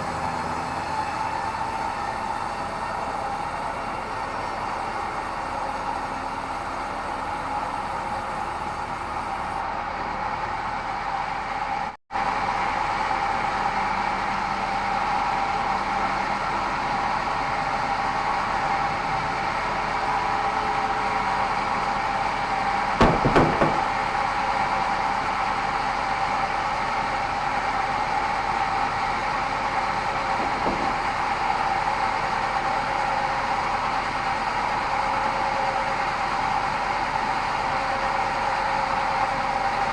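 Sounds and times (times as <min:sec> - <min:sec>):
knocks: 0:23.0 - 0:24.0, 0:30.4 - 0:31.0.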